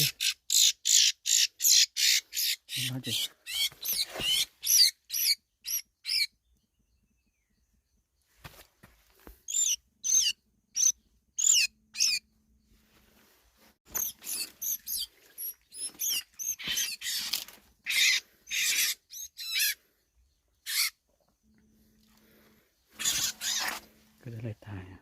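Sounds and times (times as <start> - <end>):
small bird chirping: 0.0 - 12.9, 13.9 - 24.9
bird squawking harshly: 16.0 - 19.8, 20.7 - 21.0, 23.0 - 23.8.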